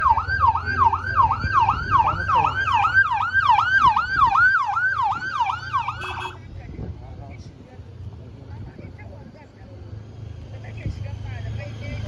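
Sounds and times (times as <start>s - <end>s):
siren yelping: 0.0s - 6.4s.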